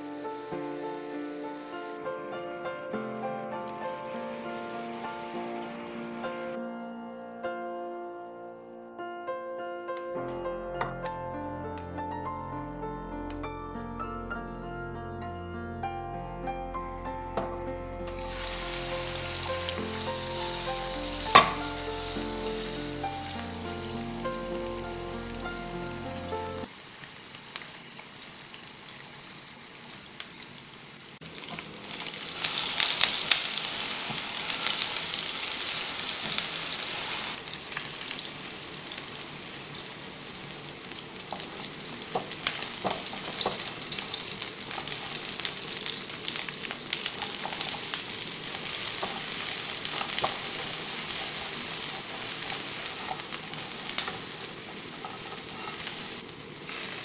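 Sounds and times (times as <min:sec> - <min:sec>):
tofu sizzling in oil: 0:18.1 - 0:57.0.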